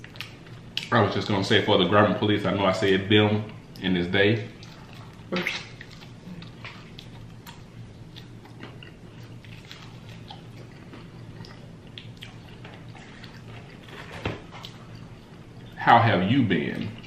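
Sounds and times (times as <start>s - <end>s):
steady low hum: 0.0s - 17.0s
close-up chewing of food: 4.6s - 15.8s.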